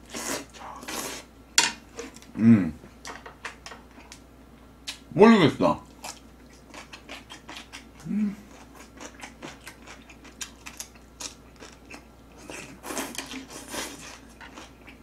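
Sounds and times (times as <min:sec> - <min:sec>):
closed-mouth hum: 0:00.0 - 0:03.0, 0:04.0 - 0:10.5
wet chewing and mouth smacks: 0:05.9 - 0:15.0.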